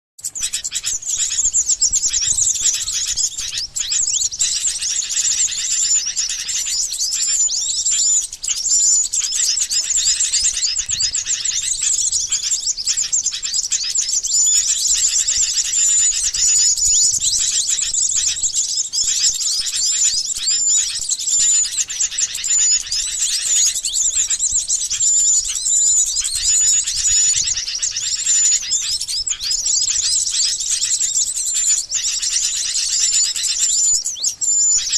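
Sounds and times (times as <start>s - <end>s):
bulbuls chattering: 0.2s - 34.9s
small songbirds chirping: 0.2s - 34.9s.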